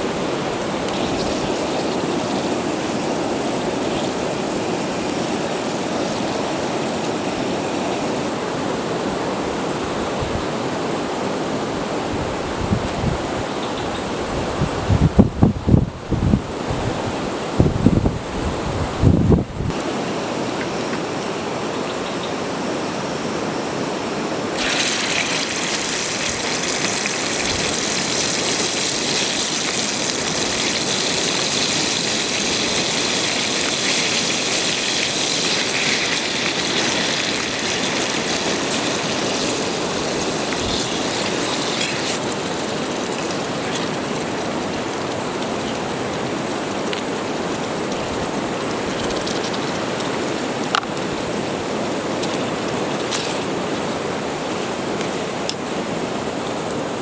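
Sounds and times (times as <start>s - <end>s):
steady rain: 0.0s - 9.9s, 24.5s - 56.8s
wind: 0.0s - 57.0s
bright hiss: 24.6s - 44.0s.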